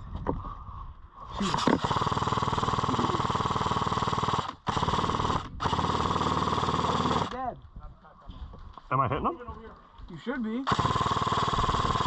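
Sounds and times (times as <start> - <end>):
airsoft machine gun rattle: 1.4 - 7.4, 10.6 - 12.0.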